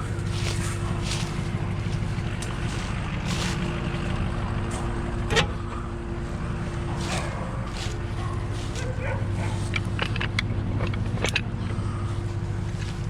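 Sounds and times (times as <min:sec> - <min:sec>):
vehicle engine idling: 0:00.0 - 0:13.0
scuffing sounds: 0:00.1 - 0:05.0, 0:06.8 - 0:09.7.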